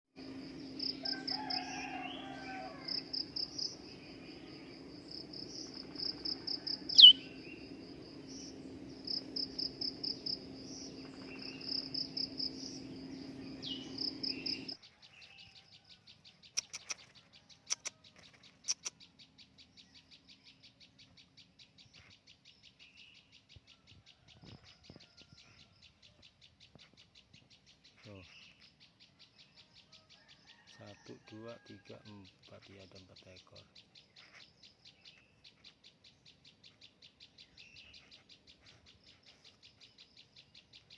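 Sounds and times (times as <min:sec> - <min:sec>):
steady low hum: 0:00.2 - 0:14.8
high-pitched pulsed chirping: 0:05.4 - 0:14.8
sharp clicks: 0:16.5 - 0:19.0.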